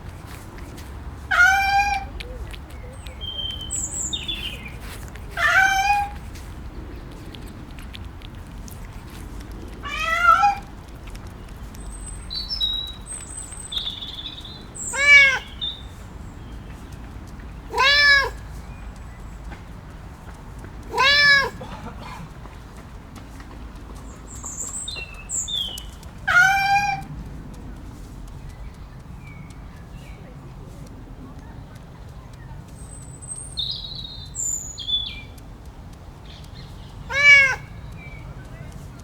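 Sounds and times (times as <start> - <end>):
cat meowing: 1.3 - 2.5, 5.3 - 6.3, 9.8 - 10.7, 13.8 - 15.6, 17.7 - 18.4, 20.8 - 21.6, 26.2 - 27.1, 37.0 - 38.2.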